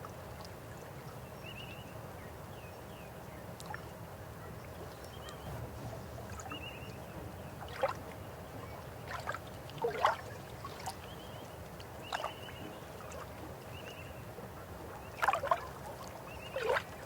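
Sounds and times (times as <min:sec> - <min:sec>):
river water flowing: 0:03.5 - 0:17.0
water gurgling splashes: 0:09.0 - 0:11.0, 0:15.0 - 0:15.8, 0:16.4 - 0:17.0.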